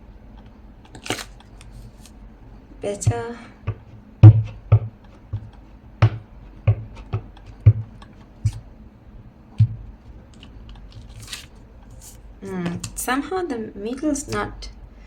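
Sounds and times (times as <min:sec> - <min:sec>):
stamp knocking on tabletop: 0:03.0 - 0:07.9.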